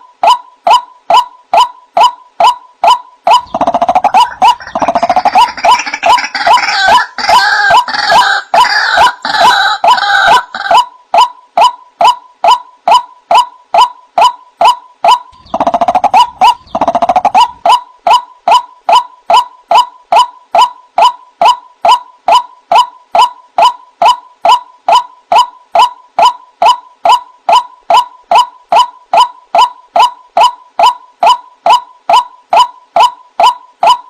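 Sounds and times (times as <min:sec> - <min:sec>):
waterhen calling: 0:03.3 - 0:10.9, 0:15.1 - 0:19.4.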